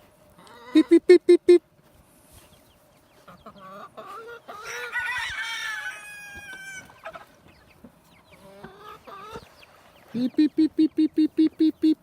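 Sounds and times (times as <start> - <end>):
chickens clucking: 0.3 - 1.6, 2.2 - 12.0
rooster crowing: 4.6 - 6.9.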